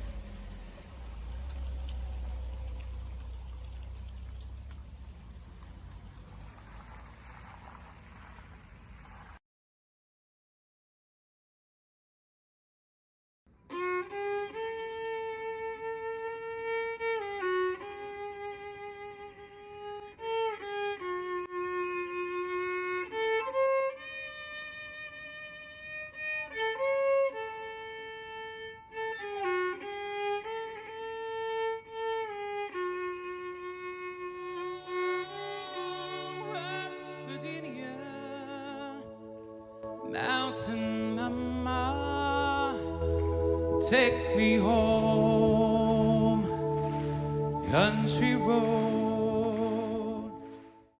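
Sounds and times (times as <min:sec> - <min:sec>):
solo violin melody: 0:00.0 - 0:06.6, 0:13.7 - 0:50.7
lower accompanying notes: 0:00.0 - 0:09.1, 0:34.3 - 0:50.8.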